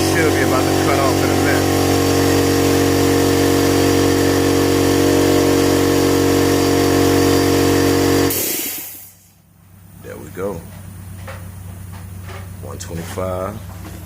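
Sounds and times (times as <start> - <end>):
air compressor running: 0.0 - 14.0
air release hiss: 8.2 - 9.4.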